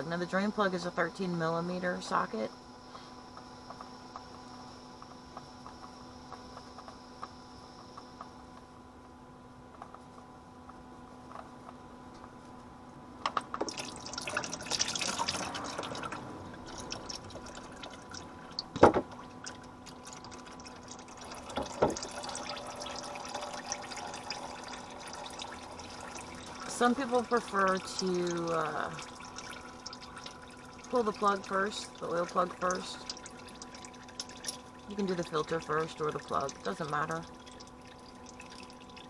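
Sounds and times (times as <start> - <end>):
oil pouring into drain pan: 13.6 - 39.0.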